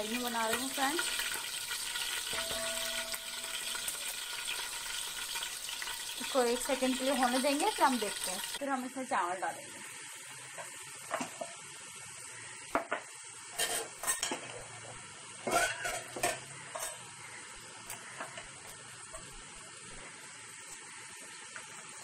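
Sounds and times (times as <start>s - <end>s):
chicken sizzling in hot oil: 0.0s - 22.0s
utensil scraping metal pot: 15.4s - 17.1s.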